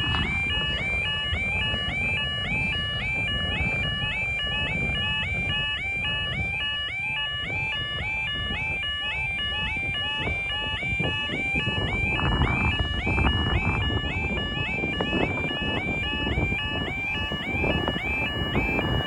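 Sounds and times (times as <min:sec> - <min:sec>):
level crossing alarms yelping: 0:00.0 - 0:19.0
wind rumble on microphone: 0:00.0 - 0:19.0.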